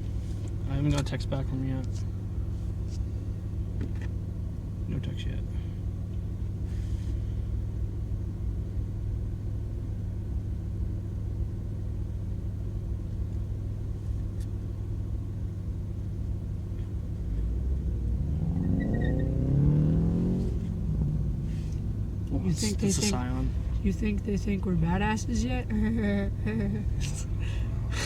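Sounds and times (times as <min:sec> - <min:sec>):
car engine idling: 0:00.0 - 0:28.0
engine revving: 0:17.2 - 0:28.0.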